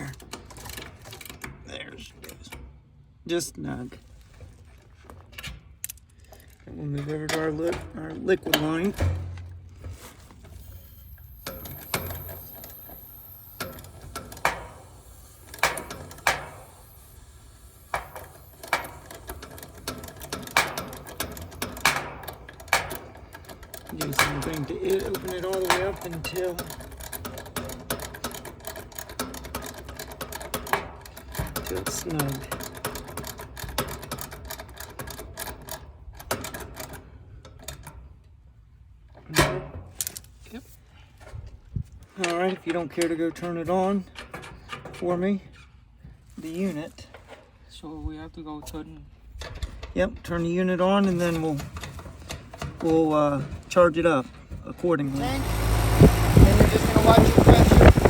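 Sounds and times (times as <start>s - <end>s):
faint high whine: 10.5s - 19.2s
rapid metallic tool clicking: 11.4s - 17.3s, 17.9s - 35.2s.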